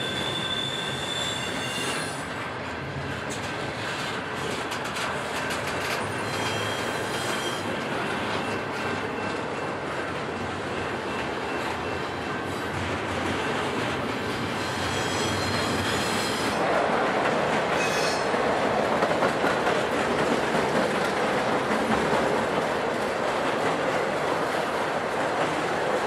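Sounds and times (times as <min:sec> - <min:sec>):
high wheel squeals: 0:00.0 - 0:02.3, 0:06.0 - 0:07.8, 0:14.6 - 0:16.6, 0:17.8 - 0:18.3
freight train wheels rumbling: 0:00.0 - 0:26.0.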